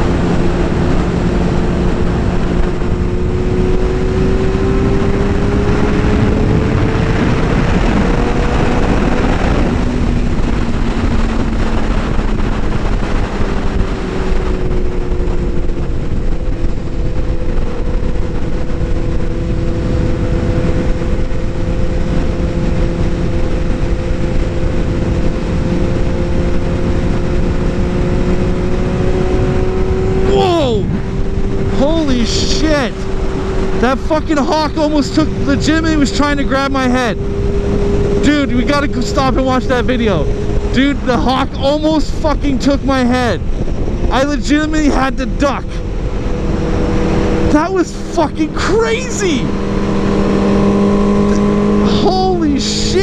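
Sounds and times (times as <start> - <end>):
motorcycle engine cruising: 0.0 - 53.0
wind rush on microphone: 0.0 - 53.0.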